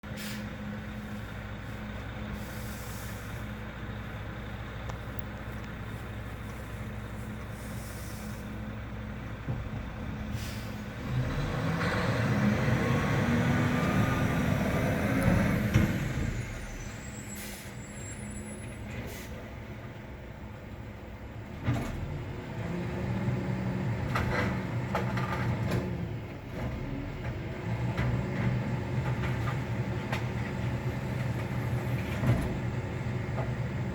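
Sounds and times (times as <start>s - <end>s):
truck diesel engine idling: 0.0s - 11.0s.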